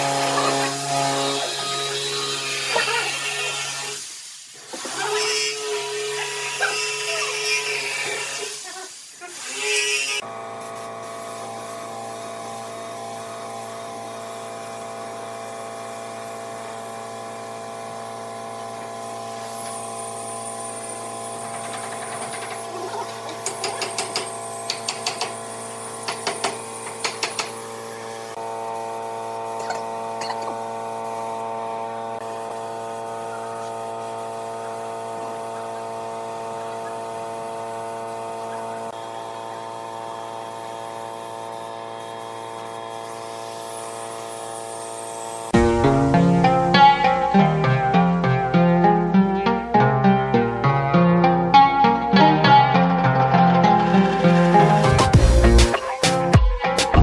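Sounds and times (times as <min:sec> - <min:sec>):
electric power tool running: 0:00.0 - 0:47.7.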